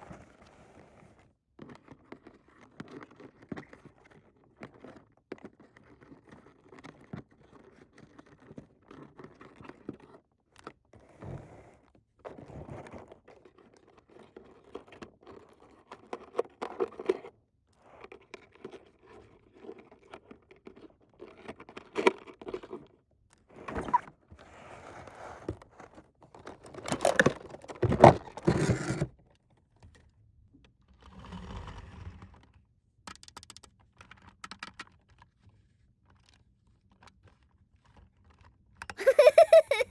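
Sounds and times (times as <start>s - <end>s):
plastic toy pieces clicking: 33.1s - 33.7s, 38.8s - 39.9s.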